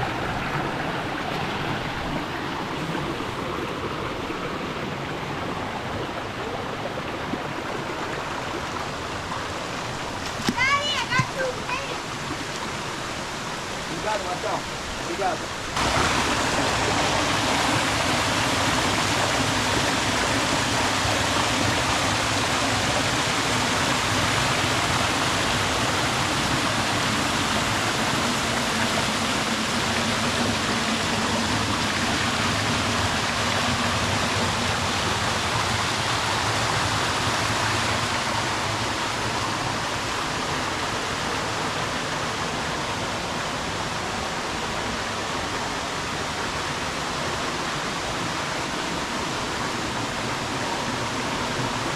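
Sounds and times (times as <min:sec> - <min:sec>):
waterfall rushing water: 0:00.0 - 0:51.9.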